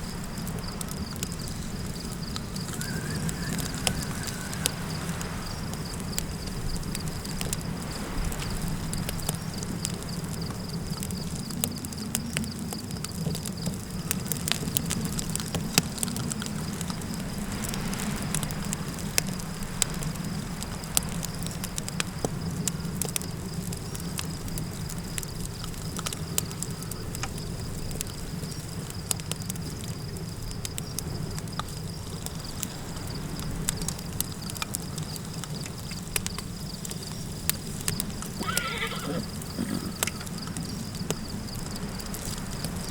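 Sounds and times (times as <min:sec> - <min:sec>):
high insect drone: 0:00.0 - 0:12.6, 0:22.3 - 0:42.9
campfire crackling and popping: 0:00.0 - 0:42.9
low rumble of wind: 0:00.0 - 0:42.9.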